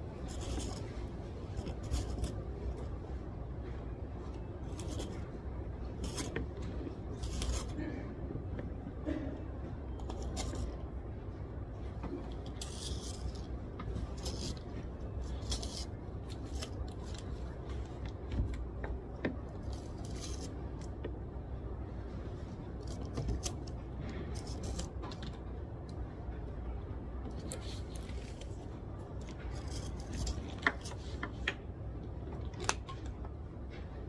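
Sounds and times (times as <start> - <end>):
steady low hum: 0.0 - 34.0
pen and paper rustles: 0.1 - 8.8, 9.9 - 11.0, 11.8 - 21.2, 22.2 - 25.6, 27.2 - 31.7.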